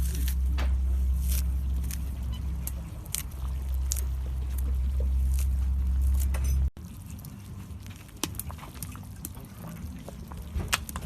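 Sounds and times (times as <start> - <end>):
liquid bubbling and splashing: 6.8 - 11.0
campfire pops and crackles: 8.1 - 9.4.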